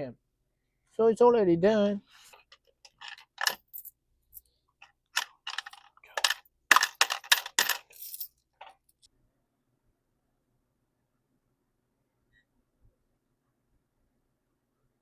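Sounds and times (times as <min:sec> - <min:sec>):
coins clinking: 0:02.8 - 0:03.9, 0:05.2 - 0:08.8.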